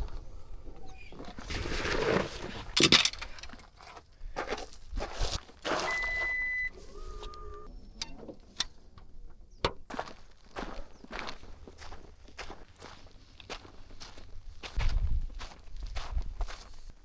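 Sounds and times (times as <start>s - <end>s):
rustling and handling clatter: 0.8s - 9.9s
high electronic beep: 5.8s - 6.8s
two-tone electronic chirp: 5.8s - 7.7s.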